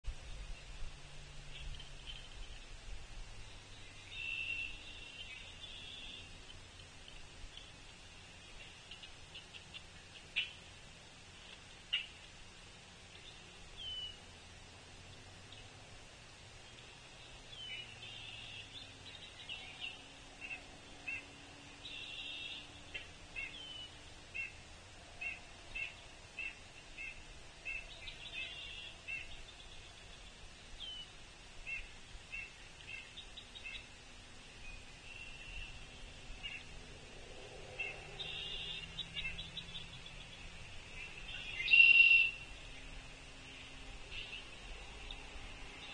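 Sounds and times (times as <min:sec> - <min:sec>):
harsh buzzy bird calls: 0:37.7 - 0:43.0
short sharp bird calls: 0:37.8 - 0:40.0, 0:41.3 - 0:42.5.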